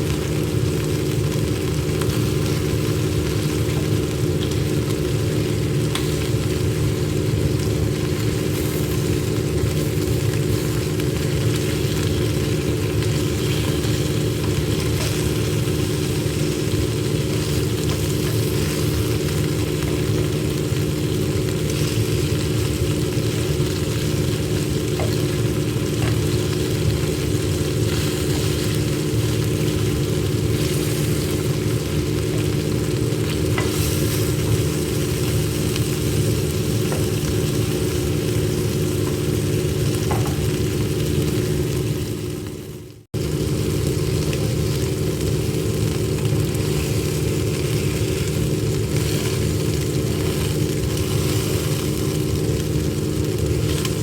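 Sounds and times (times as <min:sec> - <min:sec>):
chicken sizzling on a grill: 0:00.0 - 0:54.0
steady low hum: 0:00.0 - 0:54.0.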